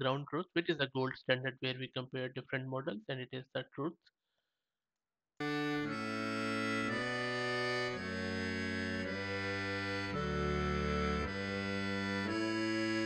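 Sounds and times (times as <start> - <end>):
accordion playing chords: 5.4 - 13.0.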